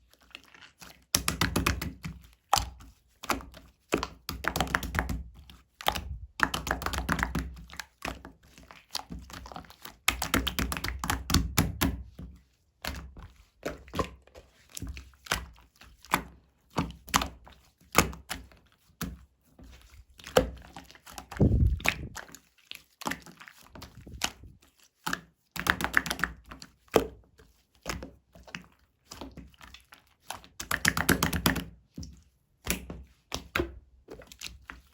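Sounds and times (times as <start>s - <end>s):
soft low thuds: 21.4s - 22.2s.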